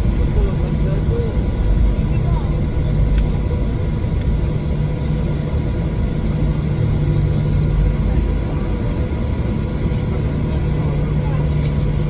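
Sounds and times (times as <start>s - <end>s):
airliner cabin drone: 0.0s - 12.0s
faint steady whine: 0.0s - 12.0s.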